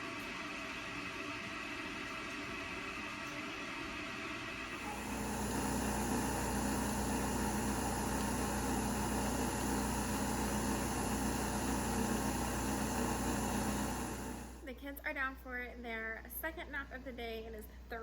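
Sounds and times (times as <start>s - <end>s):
appliance motor humming: 4.7s - 14.6s.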